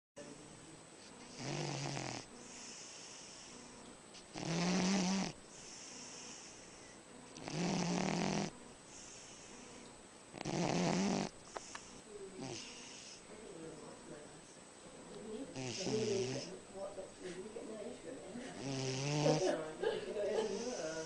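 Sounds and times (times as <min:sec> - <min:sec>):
dog snoring: 0:01.1 - 0:03.6, 0:04.2 - 0:13.2, 0:15.5 - 0:16.6, 0:18.5 - 0:19.6
dog breathing softly: 0:05.5 - 0:07.5, 0:08.9 - 0:10.0, 0:11.0 - 0:13.3.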